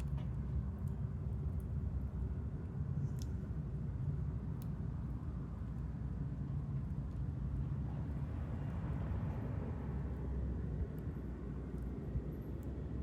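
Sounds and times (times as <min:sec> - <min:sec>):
wood fire crackling: 0:00.0 - 0:07.6.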